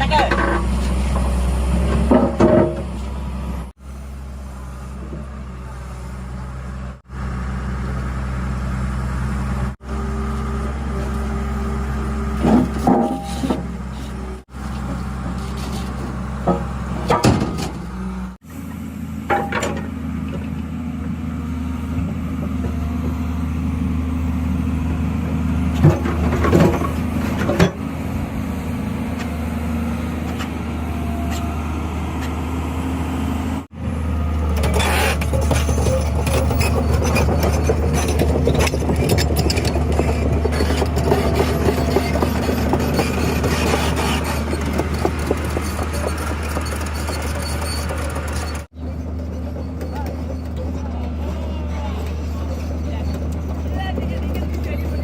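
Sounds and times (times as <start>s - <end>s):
diesel engine running: 0.0s - 55.0s
metallic knocks and clanks: 16.4s - 17.8s.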